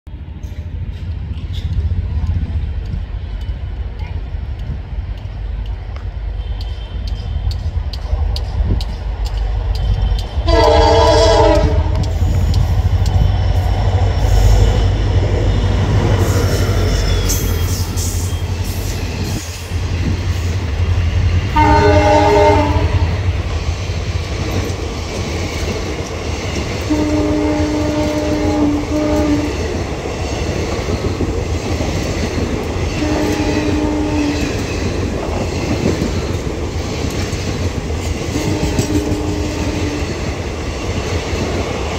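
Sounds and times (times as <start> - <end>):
locomotive and coaches rumbling: 0.1 - 41.9
train wheels clickety-clack: 0.2 - 41.9
locomotive horn blowing: 10.4 - 12.1, 21.5 - 23.2, 26.9 - 29.6, 33.0 - 34.4, 38.4 - 40.0.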